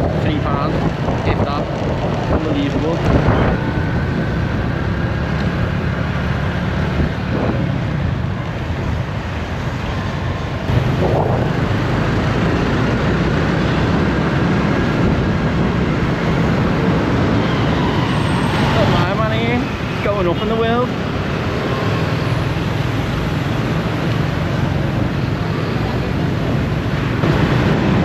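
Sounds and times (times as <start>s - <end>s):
wind buffeting microphone: 0.0s - 20.1s
road noise: 0.0s - 28.0s.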